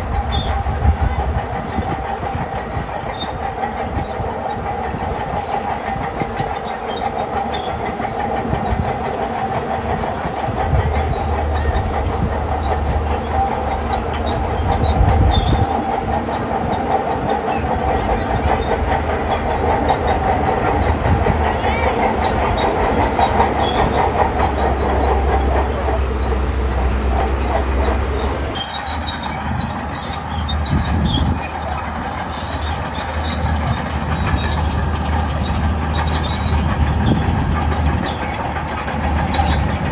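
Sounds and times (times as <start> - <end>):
steel tracks clattering: 0.0 - 39.9
bulldozer engine droning: 9.2 - 39.9.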